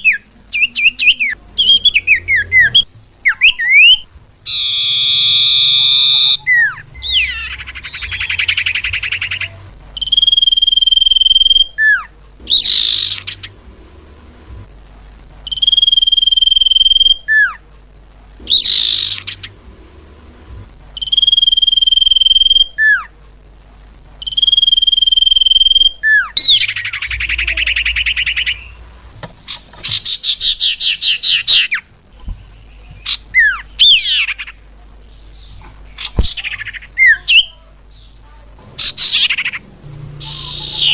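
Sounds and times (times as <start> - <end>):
high whistled bird call: 0.0 - 13.5, 15.5 - 17.6, 18.4 - 19.5, 21.0 - 23.1, 24.2 - 28.8, 40.2 - 40.9
buzzy bird trills: 0.0 - 13.7, 15.4 - 17.6, 18.4 - 19.7, 21.0 - 23.1, 24.2 - 28.9, 29.5 - 34.6, 38.8 - 40.9
downward-slurred bird notes: 0.0 - 14.4, 38.8 - 40.9.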